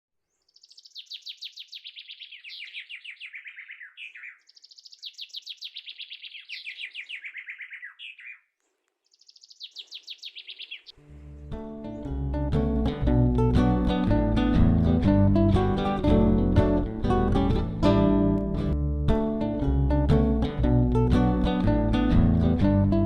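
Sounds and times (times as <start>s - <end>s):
songbird singing rapid trills: 0.2s - 11.0s.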